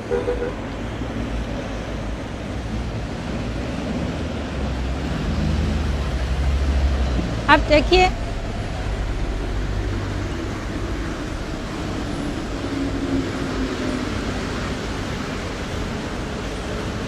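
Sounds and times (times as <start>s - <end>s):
light-rail train rumbling: 0.0s - 17.0s
faint hum: 4.9s - 16.2s.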